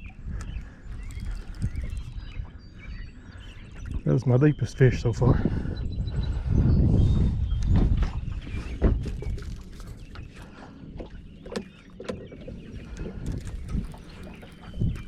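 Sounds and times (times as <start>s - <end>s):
knocks and clatter in boat: 7.6s - 15.0s.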